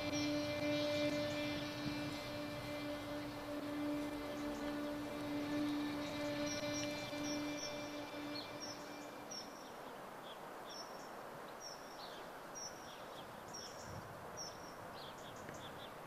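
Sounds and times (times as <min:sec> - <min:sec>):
bird high chirp: 0:00.0 - 0:09.9
faint lower chirps: 0:00.0 - 0:10.0
steady background noise: 0:00.0 - 0:16.0.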